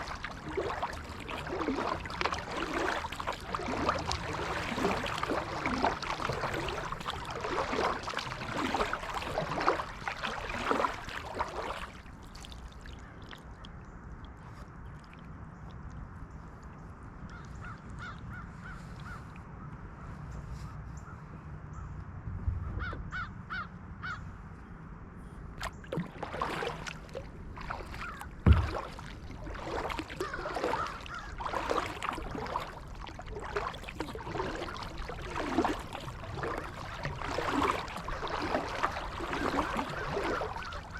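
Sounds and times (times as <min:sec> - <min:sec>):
kayak paddle splashing: 0:00.0 - 0:16.6, 0:17.3 - 0:19.4, 0:25.6 - 0:40.9
bird calling: 0:27.8 - 0:28.3, 0:29.9 - 0:31.9, 0:36.4 - 0:40.9.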